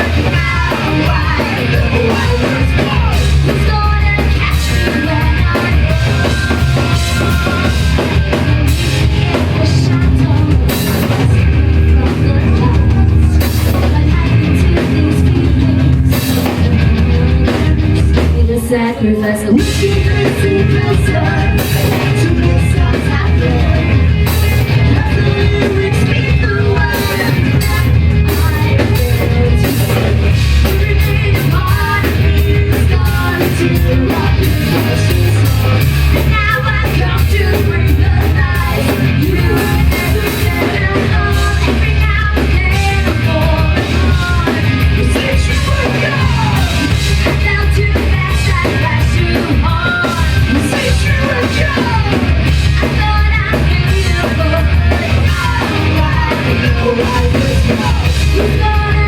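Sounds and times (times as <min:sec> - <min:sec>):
live rock band: 0:00.0 - 0:59.0
person singing: 0:00.0 - 0:59.0.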